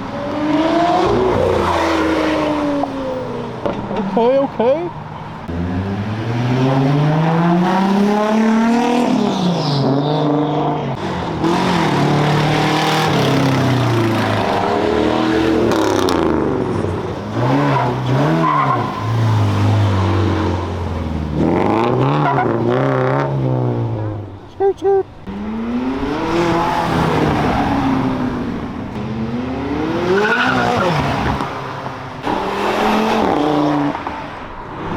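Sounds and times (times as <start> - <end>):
car engine revving hard: 5.5 - 24.0, 25.3 - 34.0.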